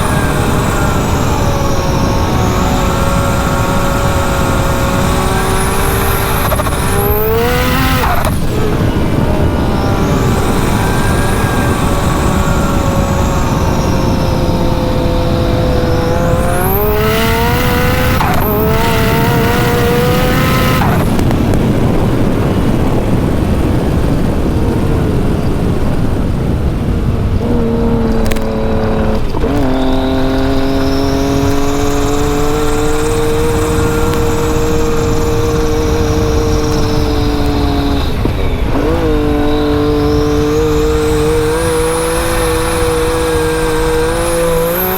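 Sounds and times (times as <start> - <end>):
engine running hard under load: 0.0 - 44.9
heavy rushing noise: 0.0 - 44.9.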